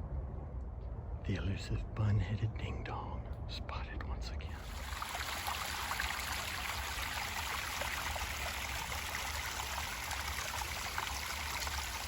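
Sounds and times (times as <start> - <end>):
faint low rumble: 0.0 - 5.2
creek water trickling: 4.6 - 12.0.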